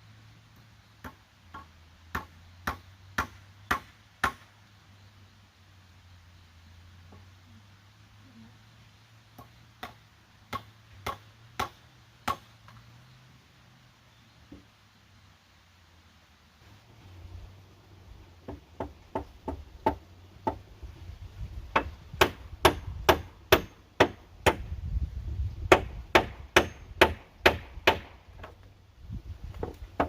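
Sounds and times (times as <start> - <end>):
hand tool striking wood: 1.0 - 4.4, 21.7 - 24.7, 25.7 - 28.6.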